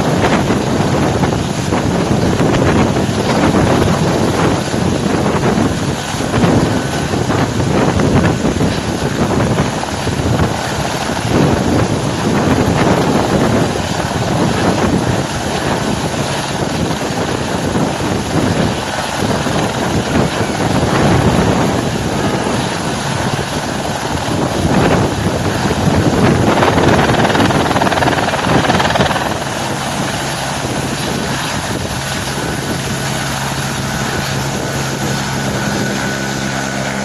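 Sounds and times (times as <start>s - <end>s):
helicopter engine and rotor: 0.0s - 37.0s
wind buffeting the microphone: 23.4s - 33.1s.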